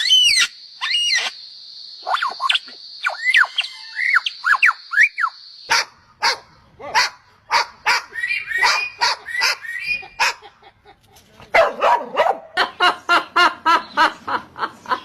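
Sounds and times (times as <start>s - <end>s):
dog barking: 5.7s - 10.5s, 11.5s - 12.6s.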